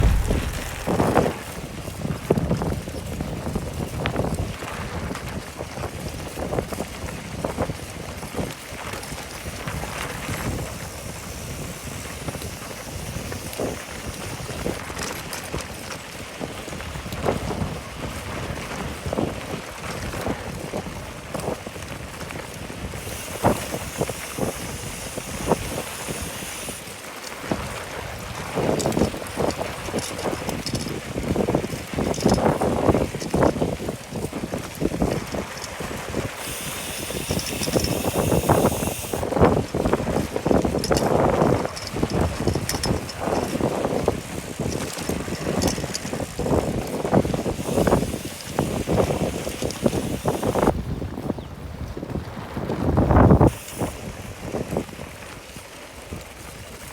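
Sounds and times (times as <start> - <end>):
bicycle knocks and rattles: 0.0 - 3.1, 23.0 - 27.6, 28.4 - 50.7
wind buffeting microphone: 0.0 - 26.8, 27.4 - 56.9
bicycle riding rumble: 0.0 - 56.9.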